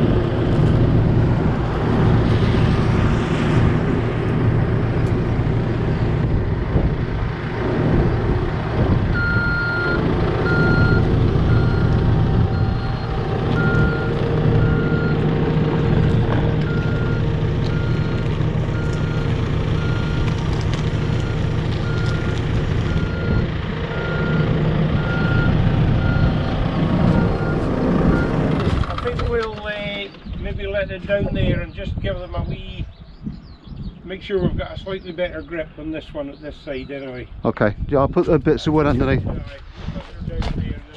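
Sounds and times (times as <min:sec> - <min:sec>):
heavy machine engine running: 0:00.0 - 0:29.3
reversing alarm beeping: 0:09.2 - 0:15.2, 0:22.9 - 0:26.4.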